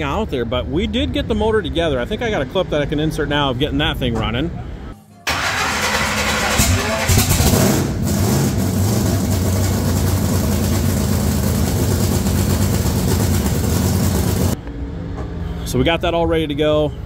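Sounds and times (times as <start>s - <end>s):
supercharged engine idling: 5.3s - 14.6s.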